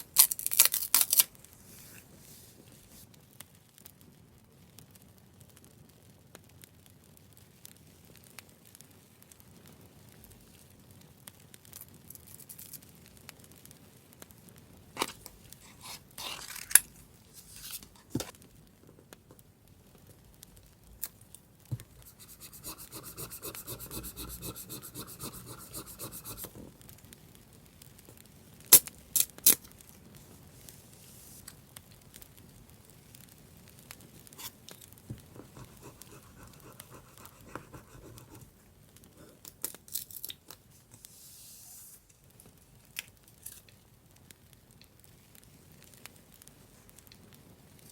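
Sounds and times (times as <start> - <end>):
paper rubbing and scraping: 15.0 - 18.3, 22.0 - 26.7, 34.4 - 38.5
fast rasping strokes: 22.0 - 26.6, 35.2 - 38.5.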